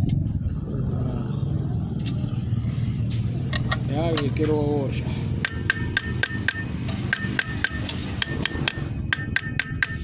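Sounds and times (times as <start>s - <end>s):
hammer tapping on metal: 3.6s - 4.5s, 5.4s - 10.0s.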